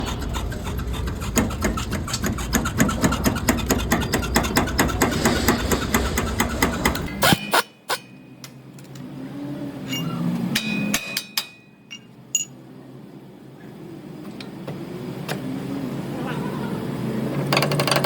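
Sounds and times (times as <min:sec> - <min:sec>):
sharp knocks and clicks: 0:00.2 - 0:07.1
thin squeak: 0:09.9 - 0:10.3.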